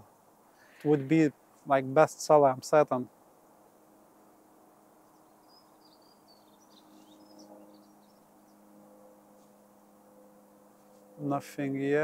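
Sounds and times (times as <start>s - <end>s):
small bird chirping: 5.0s - 8.6s.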